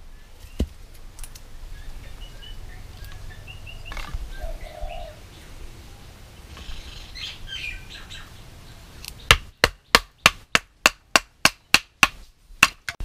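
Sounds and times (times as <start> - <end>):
sharp chopping strikes: 9.3 - 13.0.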